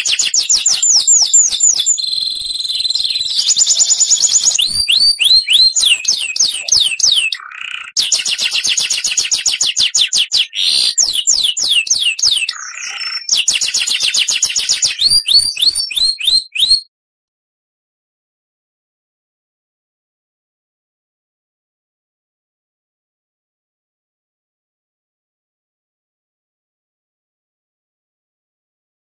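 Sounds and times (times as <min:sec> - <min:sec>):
songbird singing: 0:00.0 - 0:16.8.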